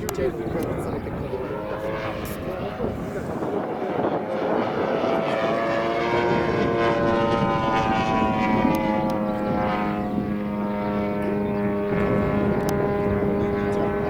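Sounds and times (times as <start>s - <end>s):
model airplane motor whining: 0.0s - 14.0s
lower motor tone: 3.6s - 14.0s.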